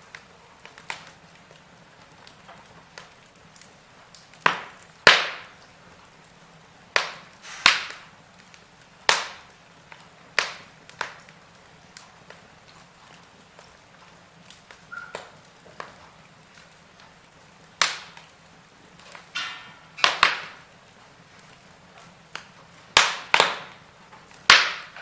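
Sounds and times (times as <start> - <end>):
wood fire crackling: 0.0 - 25.0
sharp loud fire pops: 4.4 - 5.6, 7.0 - 8.1, 9.1 - 9.5, 17.8 - 18.2, 19.2 - 20.7, 22.4 - 23.8, 24.4 - 25.0.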